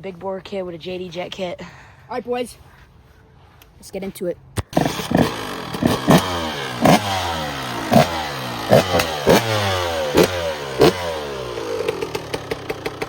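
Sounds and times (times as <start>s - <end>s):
dirt bike engine throttle blips: 4.6s - 13.0s.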